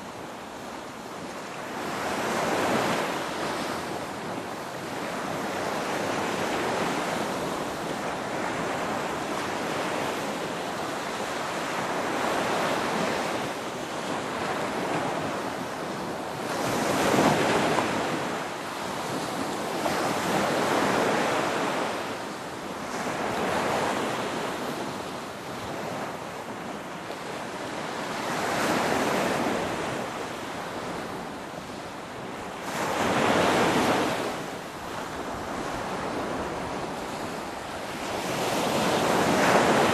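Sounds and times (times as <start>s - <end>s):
ocean waves breaking: 32.1s - 39.9s.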